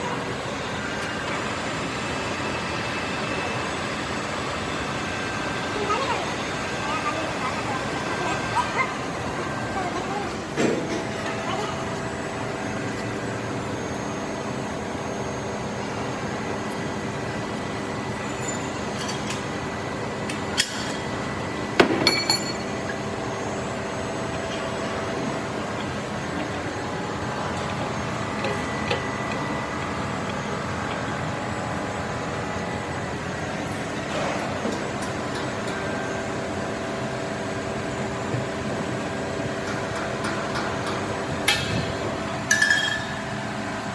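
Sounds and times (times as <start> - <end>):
workshop machinery humming: 0.0 - 43.9
metal clinks and knocks: 21.9 - 22.6.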